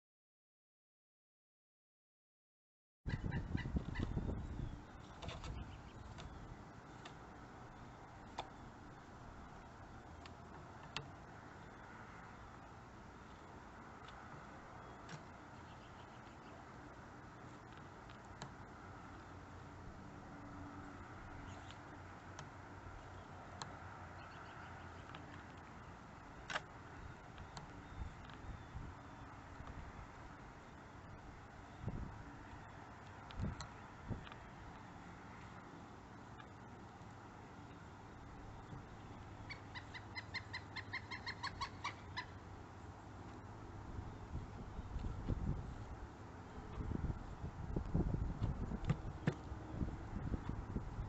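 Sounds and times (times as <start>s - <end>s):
woodpecker calling kuk notes: 3.1s - 7.1s, 14.7s - 16.8s, 24.1s - 29.7s, 38.5s - 42.5s.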